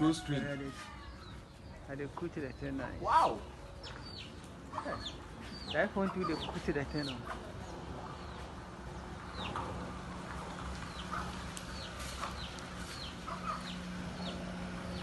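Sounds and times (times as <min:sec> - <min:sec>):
birds chirping: 0:00.0 - 0:15.0
steady low hum: 0:06.7 - 0:15.0.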